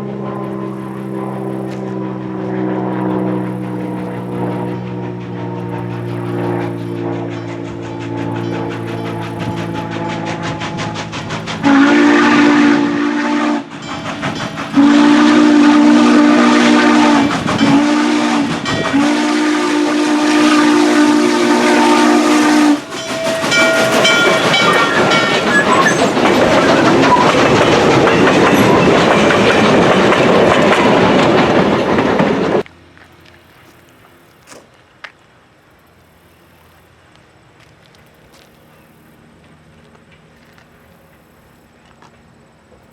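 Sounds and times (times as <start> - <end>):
steam exhaust of passing train: 0.0 - 42.9
wheels rolling on rail joints: 0.0 - 42.9
steam locomotive whistle: 5.6 - 29.2.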